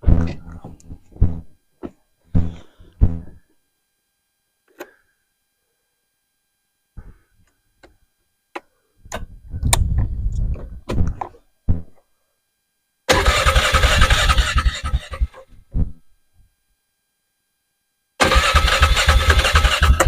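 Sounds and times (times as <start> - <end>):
vehicle engine cranking and starting: 13.1 - 15.4, 18.2 - 20.0.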